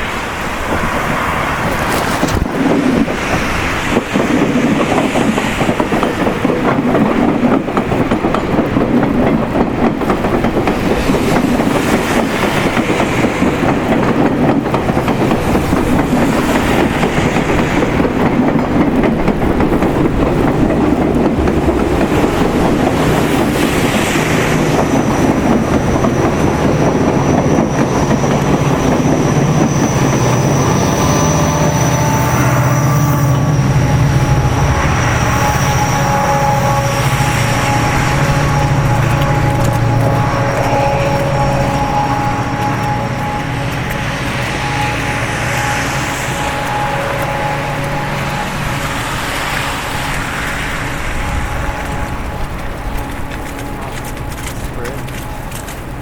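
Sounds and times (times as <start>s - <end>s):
train rumbling: 0.0s - 56.0s
wheels clacking over track: 0.0s - 56.0s
thin high tone: 23.1s - 55.9s.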